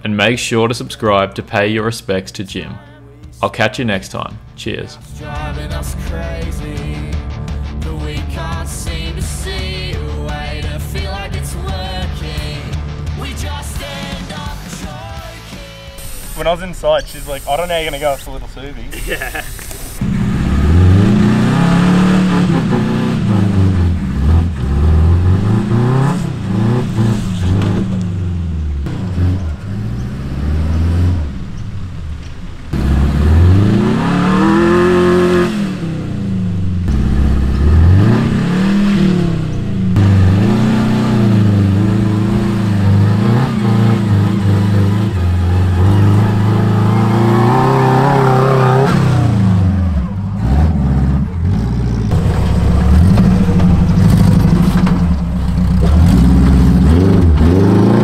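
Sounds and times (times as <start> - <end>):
engine revving under load: 17.0 - 58.0.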